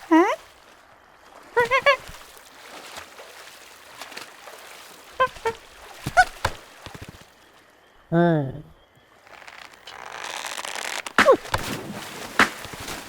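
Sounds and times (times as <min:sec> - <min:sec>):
high squeaky cartoon calls: 0:01.6 - 0:02.1, 0:05.2 - 0:06.4.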